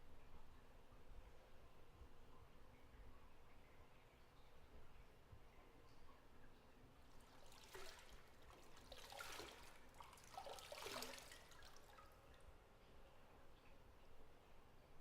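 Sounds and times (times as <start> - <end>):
bathwater trickling and sloshing: 2.6 - 14.6.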